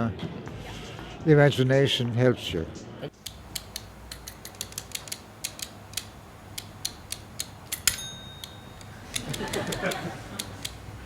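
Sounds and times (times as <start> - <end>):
sharp mechanical clicks: 3.2 - 11.0.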